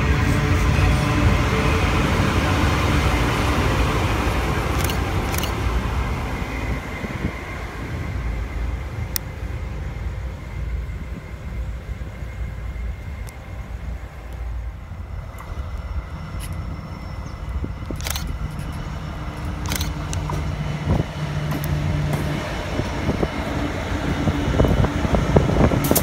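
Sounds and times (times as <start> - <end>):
faint high whine: 0.0 - 26.0
train wagons rumbling on rails: 0.0 - 26.0
sharp clicks: 4.8 - 5.6, 17.8 - 18.8, 19.6 - 20.3.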